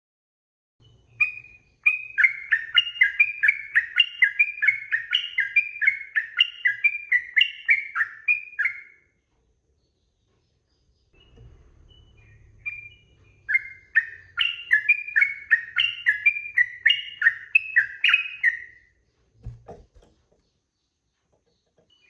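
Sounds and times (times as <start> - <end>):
bird singing bubbly notes: 11.2 - 18.8.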